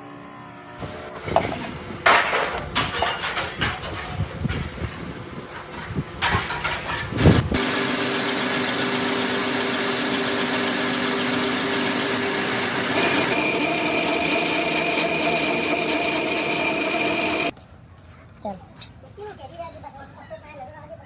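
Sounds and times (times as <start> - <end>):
motor running with a whine: 7.3 - 17.5.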